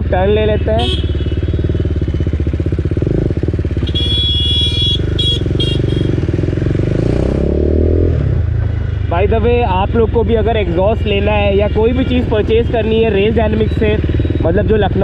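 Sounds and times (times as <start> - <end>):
motorcycle engine running: 0.0 - 15.0
high-pitched horn beeps: 3.8 - 6.2.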